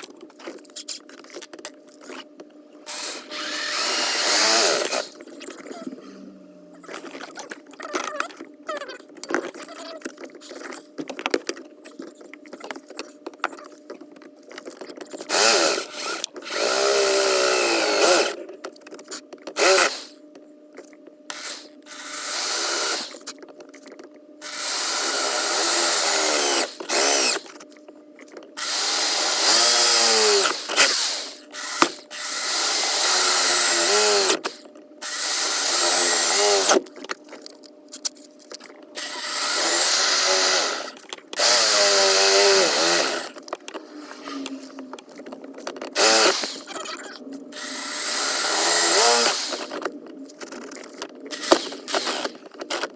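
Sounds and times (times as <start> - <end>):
electric power tool motor whirring: 2.9 - 5.8, 15.2 - 18.4, 19.5 - 20.2, 21.3 - 23.4, 24.4 - 27.6, 28.6 - 37.0, 39.0 - 49.9, 51.2 - 52.9.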